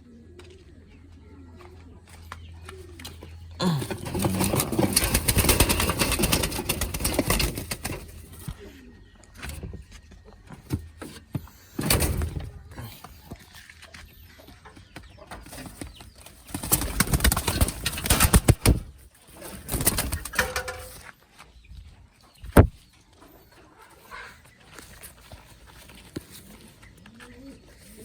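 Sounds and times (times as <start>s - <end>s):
pigeons cooing: 0.0s - 9.8s, 15.3s - 21.0s, 23.2s - 28.0s
rustling bursts: 3.8s - 8.5s.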